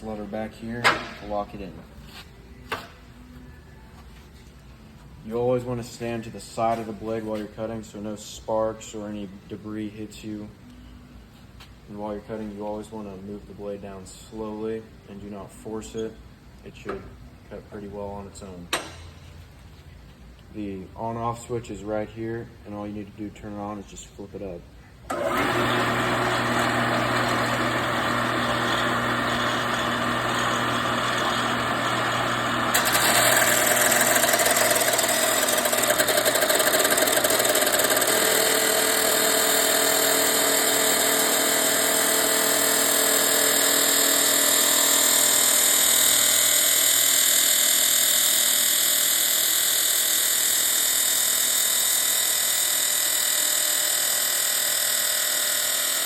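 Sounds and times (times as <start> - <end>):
chop saw motor whine: 25.1 - 56.0
saw blade grinding metal: 25.2 - 47.3.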